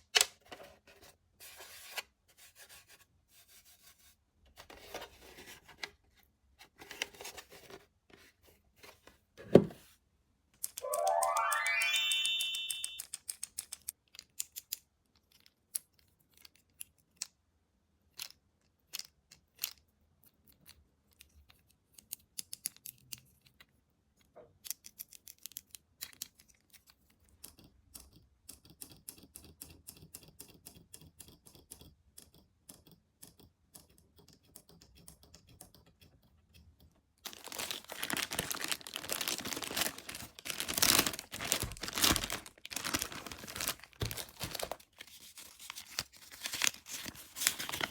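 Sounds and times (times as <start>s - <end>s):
packaging clicks and taps: 37.2s - 47.9s
packaging tearing and crinkling: 37.3s - 47.9s.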